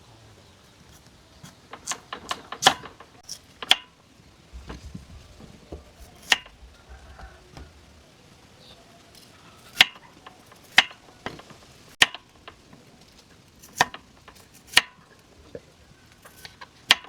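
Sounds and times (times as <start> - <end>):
hard objects clicking and knocking: 1.4 - 7.8, 9.2 - 17.0.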